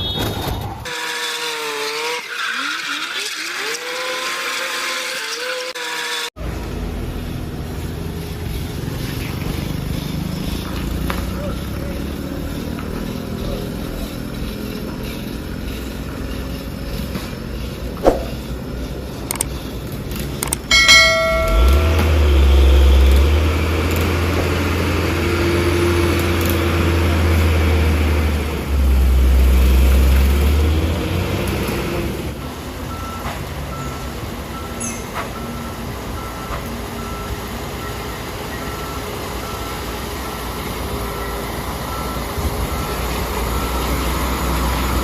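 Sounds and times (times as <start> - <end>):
diesel truck engine droning: 6.4 - 45.0
sharp knock: 18.0 - 18.4.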